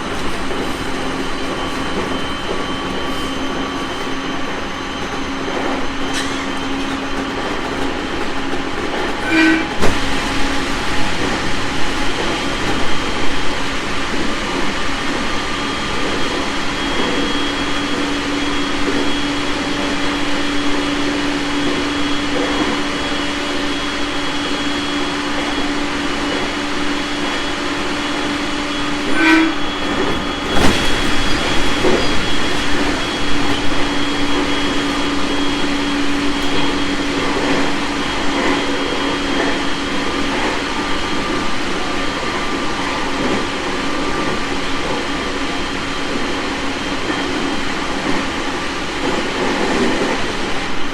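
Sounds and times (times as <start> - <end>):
wheels clattering over rail joints: 0.0 - 15.4, 28.8 - 40.6
train wheels rumbling on rail: 0.0 - 50.9.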